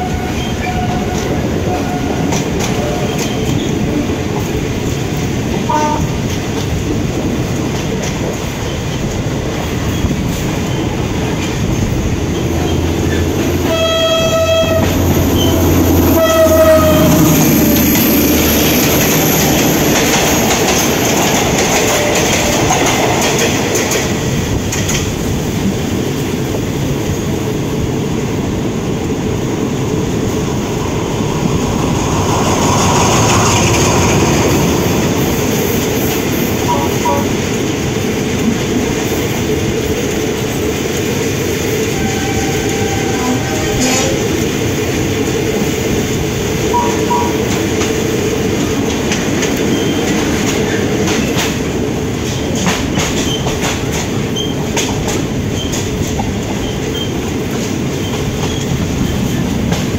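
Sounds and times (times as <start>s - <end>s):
train horn blasts: 0.0s - 2.4s, 5.7s - 6.2s, 13.6s - 17.5s, 36.6s - 37.4s, 41.9s - 44.3s
train running on rails: 0.0s - 59.9s.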